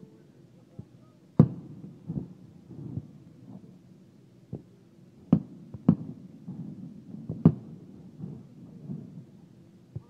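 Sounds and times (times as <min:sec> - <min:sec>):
firework bangs: 0:01.4 - 0:03.2, 0:05.2 - 0:09.4
low rolling rumble: 0:05.1 - 0:09.9.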